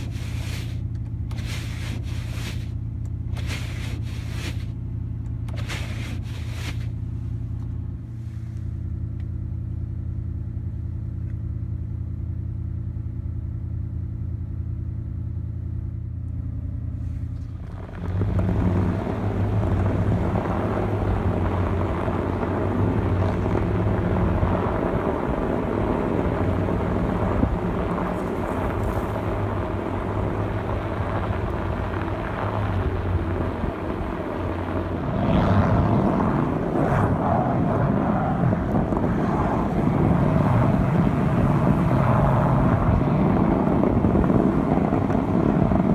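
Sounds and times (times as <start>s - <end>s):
truck engine revving: 17.6s - 45.9s.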